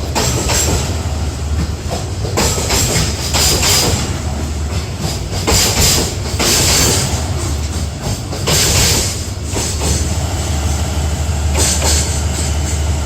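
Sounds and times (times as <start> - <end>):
freight wagons rolling on rails: 0.0 - 13.0
hissing wheel-on-rail noise: 0.0 - 13.0.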